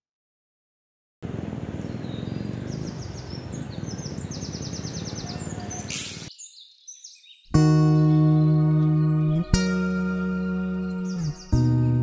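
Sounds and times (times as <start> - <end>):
birds trilling: 1.6 - 7.5.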